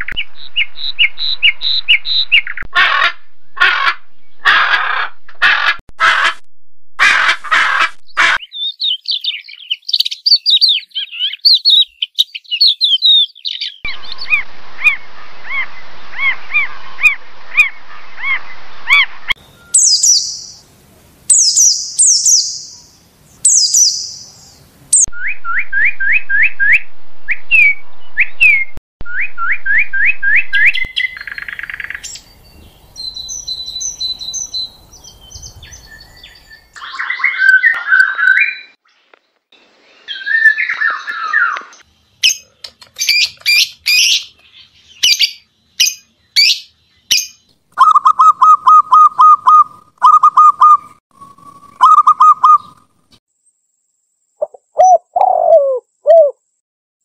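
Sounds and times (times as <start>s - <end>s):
birds singing and calling: 0.0s - 2.7s, 8.1s - 14.4s, 17.6s - 20.6s, 21.3s - 26.5s, 27.5s - 52.8s.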